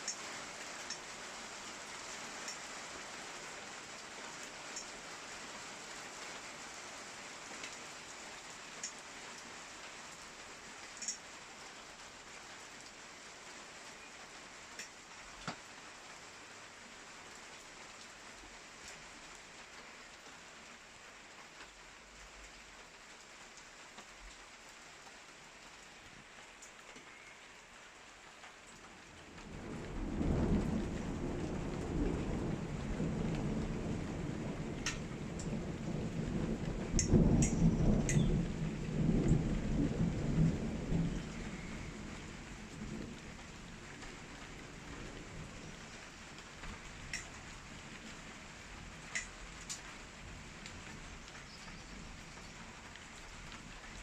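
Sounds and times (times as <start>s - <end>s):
rain falling steadily: 0.0s - 54.0s
raindrops striking a surface: 0.0s - 54.0s
thunder rumbling: 29.3s - 49.6s.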